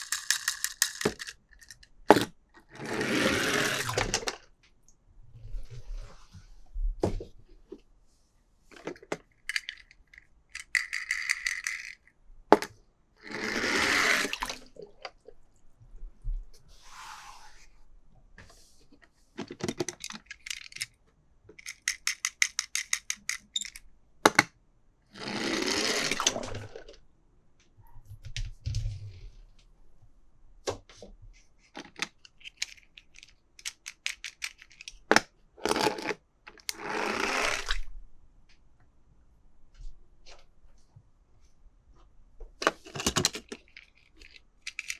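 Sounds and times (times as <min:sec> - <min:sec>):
toy cars clicking and rattling: 0:00.0 - 0:02.3, 0:03.1 - 0:04.2, 0:08.8 - 0:12.7, 0:19.6 - 0:24.5, 0:31.7 - 0:37.8, 0:42.7 - 0:44.9.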